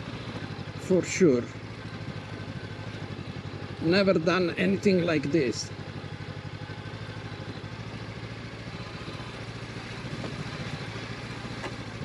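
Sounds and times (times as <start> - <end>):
motorcycle engine low putter: 1.6 - 12.0.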